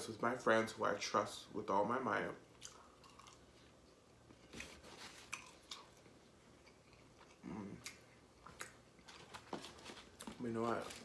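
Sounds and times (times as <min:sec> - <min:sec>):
chewing fried food: 0:02.6 - 0:04.0, 0:05.2 - 0:10.3.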